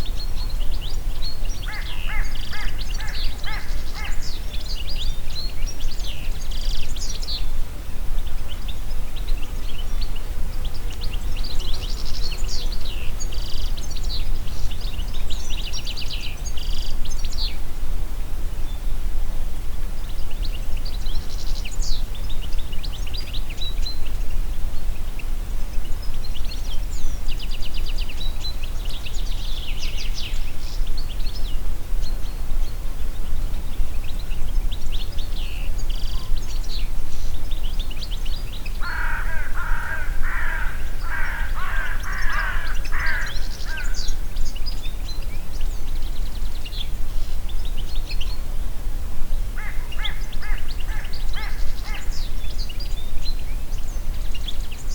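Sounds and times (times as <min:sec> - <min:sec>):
songbirds singing trills: 0:00.0 - 0:17.8, 0:18.5 - 0:54.9
wind in a forest: 0:00.0 - 0:54.9
bird lower repeated calls: 0:01.6 - 0:04.5, 0:38.7 - 0:44.2, 0:49.6 - 0:52.4.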